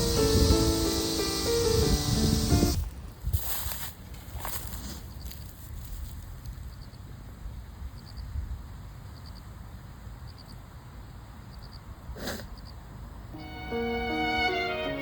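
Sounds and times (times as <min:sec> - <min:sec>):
insect chirping: 0:00.0 - 0:03.1.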